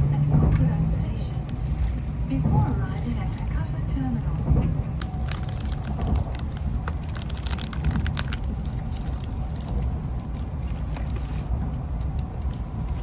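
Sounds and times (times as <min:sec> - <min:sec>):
train rumble inside car: 0:00.0 - 0:13.0.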